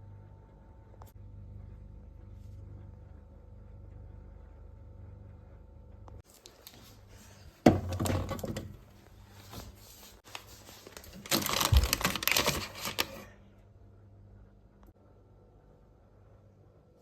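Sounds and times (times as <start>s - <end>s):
plastic packaging crinkling: 10.2s - 13.3s.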